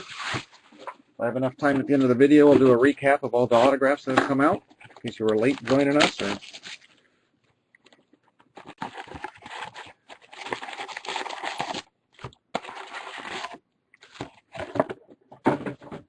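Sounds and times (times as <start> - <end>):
plastic wrapping crinkling and tearing: 4.9 - 7.0, 8.7 - 11.9.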